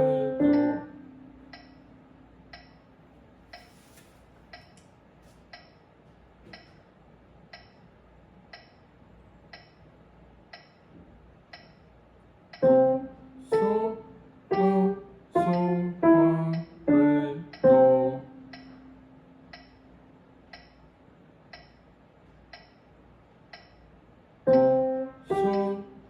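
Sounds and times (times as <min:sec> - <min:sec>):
piano playing: 0:00.0 - 0:02.1, 0:12.6 - 0:19.4, 0:24.5 - 0:26.0
metronome ticking: 0:00.1 - 0:01.8, 0:02.5 - 0:02.8, 0:12.5 - 0:13.0, 0:15.4 - 0:19.8, 0:20.5 - 0:20.8, 0:21.5 - 0:21.8, 0:22.5 - 0:22.8, 0:23.5 - 0:23.8, 0:24.5 - 0:25.8.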